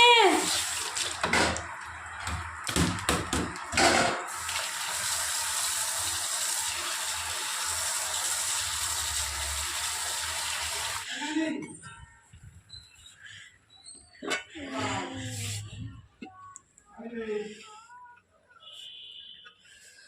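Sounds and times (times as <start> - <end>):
water running from a tap: 0.0 - 11.1.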